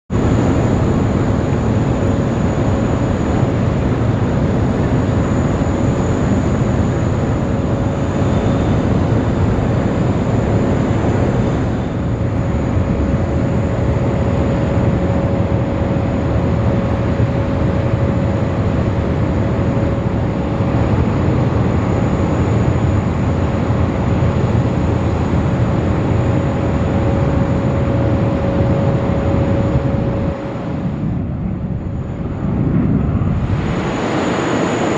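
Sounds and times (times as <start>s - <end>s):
jet engines running: 0.1s - 34.9s.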